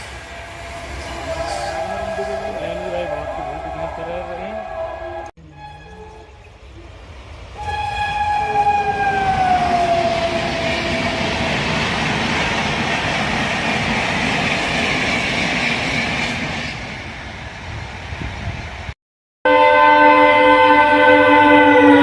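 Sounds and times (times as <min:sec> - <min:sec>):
train coaches rushing past: 0:00.0 - 0:05.3, 0:07.1 - 0:19.0
train horn: 0:00.0 - 0:06.4, 0:07.6 - 0:11.2, 0:19.4 - 0:22.0.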